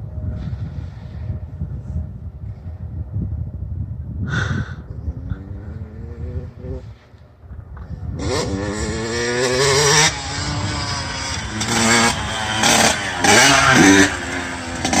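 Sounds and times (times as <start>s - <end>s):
dirt bike engine revving: 8.1s - 15.0s.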